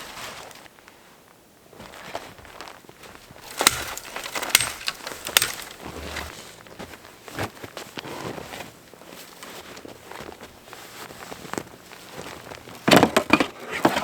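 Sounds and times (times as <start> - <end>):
footsteps crunching snow: 1.7 - 12.9.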